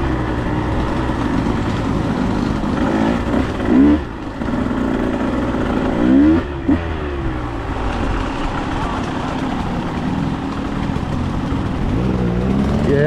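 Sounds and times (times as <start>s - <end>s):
dirt bike engine revving: 0.8s - 7.7s, 9.5s - 13.0s.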